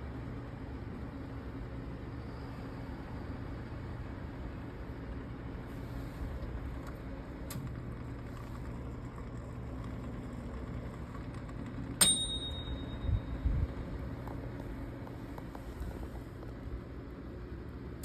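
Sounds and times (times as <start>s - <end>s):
microwave oven humming: 0.0s - 18.0s
timer bell ding: 12.0s - 13.4s.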